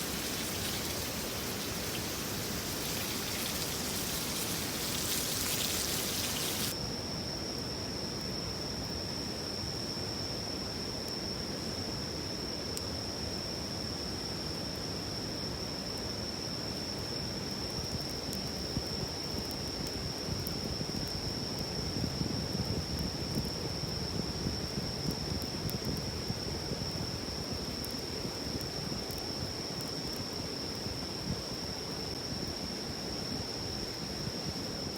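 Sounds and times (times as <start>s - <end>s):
bright hiss: 0.0s - 6.8s
stream rushing: 0.0s - 6.8s
high insect trill: 0.0s - 7.2s.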